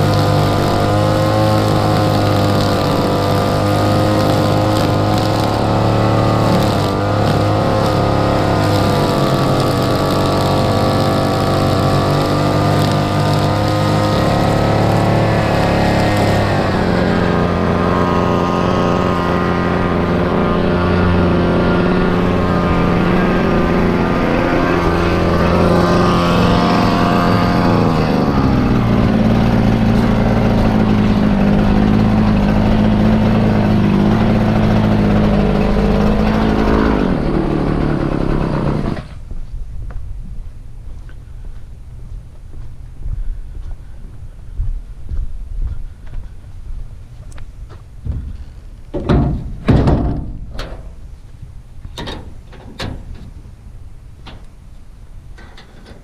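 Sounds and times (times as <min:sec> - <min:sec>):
lawn mower engine running: 0:00.0 - 0:39.6.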